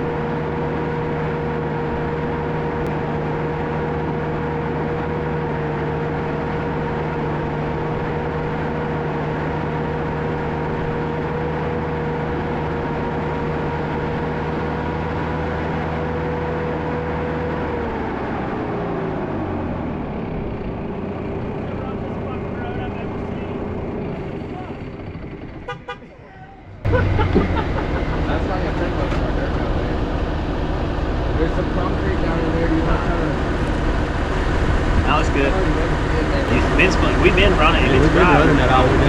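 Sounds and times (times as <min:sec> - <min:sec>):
bulldozer diesel engine running: 0:00.0 - 0:39.0
steady whine: 0:26.9 - 0:39.0.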